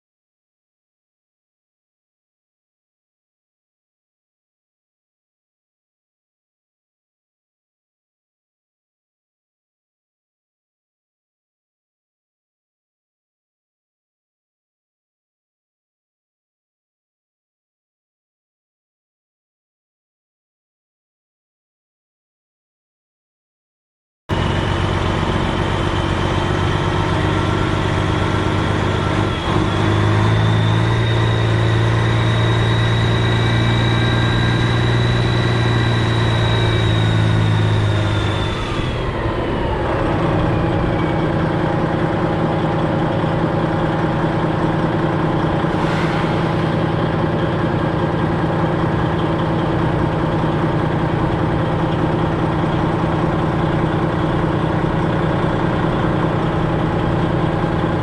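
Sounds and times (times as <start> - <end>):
high whine: 24.3 - 43.8, 44.4 - 51.6
diesel truck engine running: 24.3 - 58.0.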